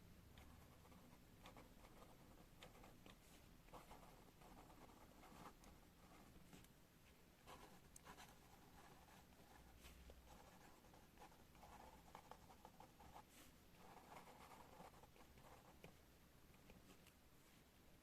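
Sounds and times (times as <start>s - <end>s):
pen scratching on paper: 0.4s - 6.3s, 7.5s - 16.0s.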